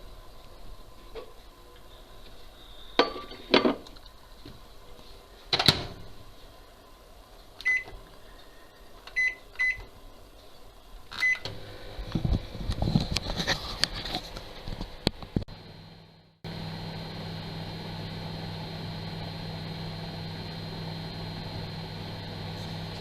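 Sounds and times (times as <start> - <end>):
microwave oven humming: 5.6 - 23.0
short keypad beeps: 7.7 - 7.9.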